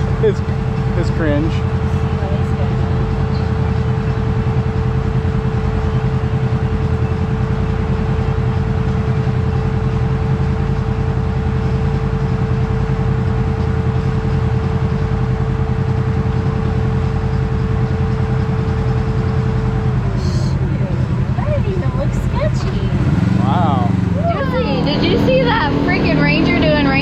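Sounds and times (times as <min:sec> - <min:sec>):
steady whine: 0:00.0 - 0:27.0
vehicle engine droning: 0:00.0 - 0:27.0.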